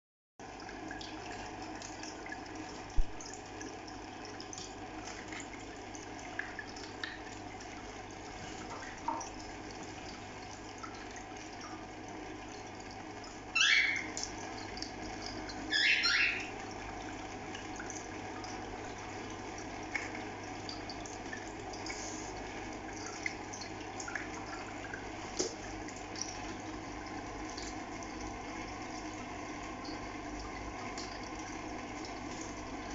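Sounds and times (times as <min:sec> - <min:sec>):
water-like running noise: 0:00.4 - 0:32.9
cockatiels chirping softly: 0:13.6 - 0:14.1, 0:15.7 - 0:16.5
loud rising bird calls: 0:13.6 - 0:14.2, 0:15.7 - 0:16.5.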